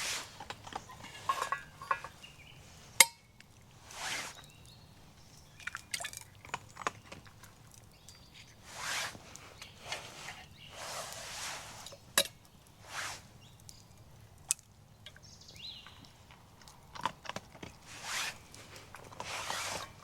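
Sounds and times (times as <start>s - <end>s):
utensils clinking on cookware: 0.7s - 2.4s.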